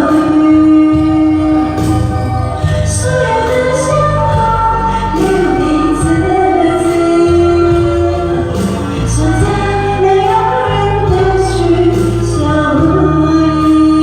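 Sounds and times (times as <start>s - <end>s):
amplified backing music: 0.0s - 14.0s
woman singing pop ballad: 0.0s - 14.0s.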